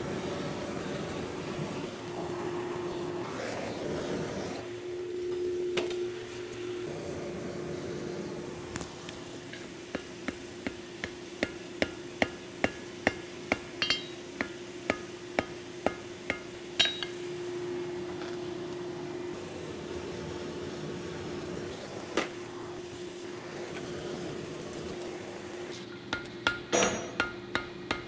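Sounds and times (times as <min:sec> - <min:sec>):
steady hum: 0:00.0 - 0:28.0
hammer strikes on hot steel: 0:09.4 - 0:17.4, 0:25.8 - 0:28.0
anvil ringing: 0:10.0 - 0:17.3, 0:26.1 - 0:28.0.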